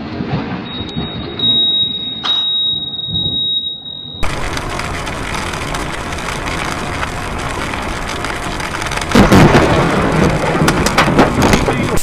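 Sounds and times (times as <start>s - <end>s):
lightning strike crack: 0.0s - 3.5s, 4.2s - 12.0s
stormy hiss: 4.2s - 12.0s.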